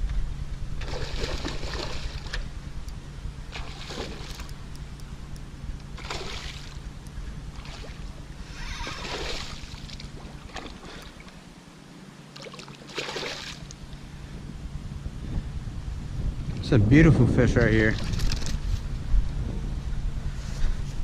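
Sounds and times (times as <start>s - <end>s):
rushes of noise: 5.9s - 11.3s, 13.8s - 21.0s
wind buffeting microphone: 13.7s - 21.0s.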